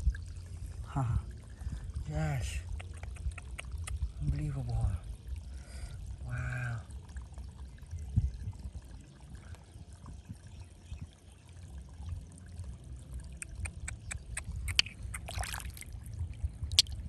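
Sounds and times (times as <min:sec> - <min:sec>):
water pouring and trickling: 0:00.0 - 0:17.0
water splash: 0:14.4 - 0:16.0.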